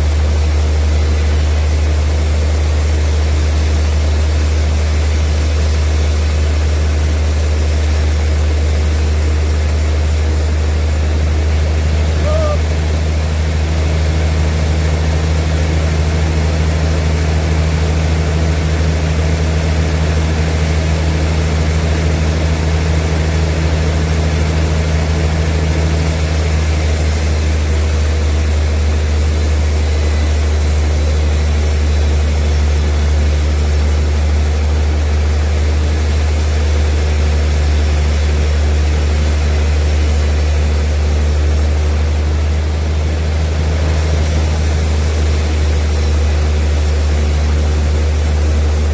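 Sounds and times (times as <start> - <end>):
sawmill machinery low drone: 0.0 - 48.9
bright hiss: 19.4 - 48.9.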